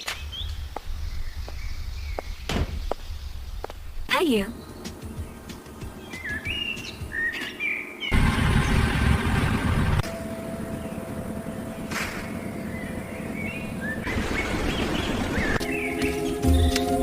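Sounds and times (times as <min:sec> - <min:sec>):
small birds chirping: 0:00.0 - 0:08.9, 0:10.6 - 0:17.0.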